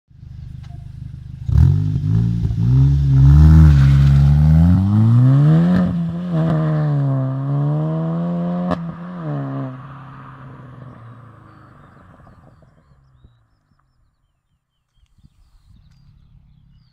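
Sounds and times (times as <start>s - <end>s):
car engine revving: 0.2s - 13.5s
exhaust cracks: 0.4s - 7.2s.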